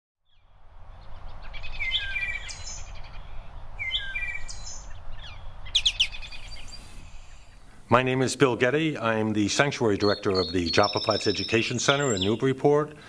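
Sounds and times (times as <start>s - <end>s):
songbird singing: 0.2s - 13.0s
low outdoor rumble: 0.4s - 9.7s.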